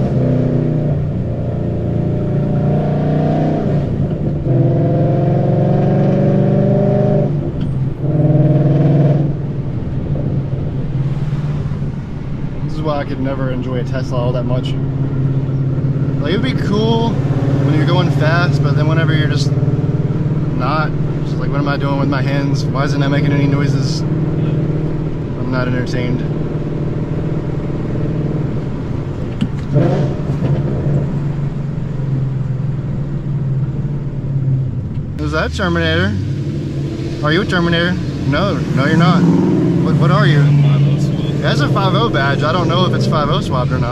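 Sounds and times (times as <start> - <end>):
car engine under load: 0.0 - 43.9.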